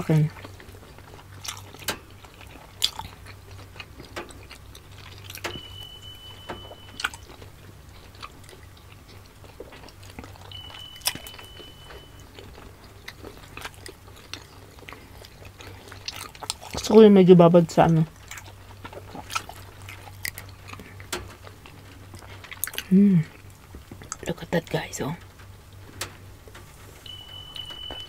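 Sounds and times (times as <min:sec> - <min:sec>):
chewing and wet mouth sounds: 0:00.0 - 0:28.0
low steady hum: 0:00.0 - 0:28.0
faint high beeps: 0:05.4 - 0:07.5, 0:10.4 - 0:12.5, 0:27.0 - 0:28.0.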